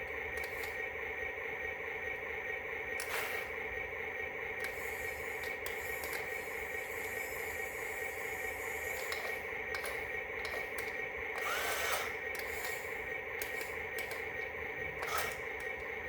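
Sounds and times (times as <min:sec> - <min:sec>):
small electric motor whirring: 0:03.0 - 0:03.6, 0:04.6 - 0:14.4, 0:15.0 - 0:16.0.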